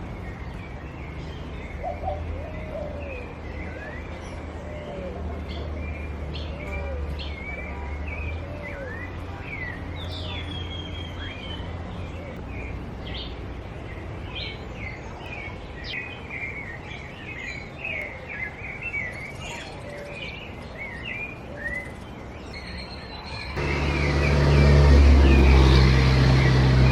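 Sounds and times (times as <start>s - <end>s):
birds chirping and whistling: 15.8s - 26.9s
low steady rumble: 23.6s - 26.9s.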